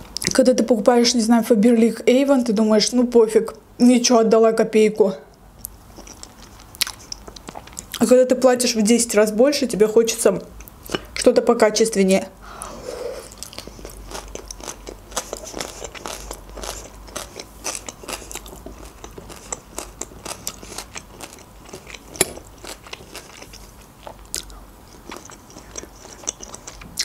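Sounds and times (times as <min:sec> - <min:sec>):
crunchy chewing of salad: 0:05.6 - 0:08.1, 0:12.6 - 0:27.0.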